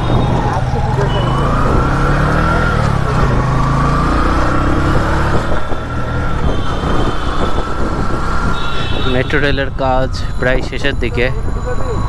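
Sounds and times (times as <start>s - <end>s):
motorcycle engine running: 0.0s - 9.2s
road and wind noise: 0.0s - 12.0s.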